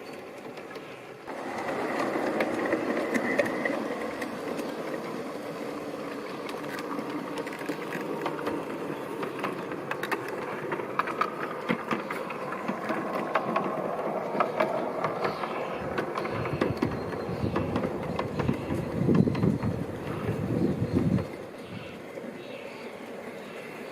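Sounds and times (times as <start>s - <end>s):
model train motor humming: 0.0s - 23.9s.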